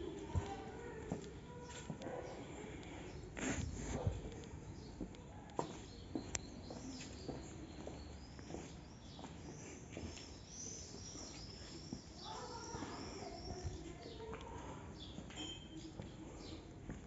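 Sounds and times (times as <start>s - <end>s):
faint bird chirps: 4.8s - 14.4s, 15.0s - 16.6s
high bird chirping: 5.9s - 14.3s.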